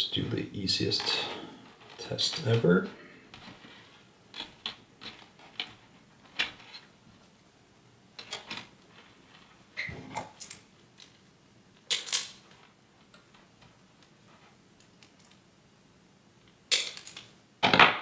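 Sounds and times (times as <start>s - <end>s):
small parts and tools clicking: 3.3s - 6.9s, 11.8s - 14.1s, 14.8s - 15.4s, 16.4s - 17.4s.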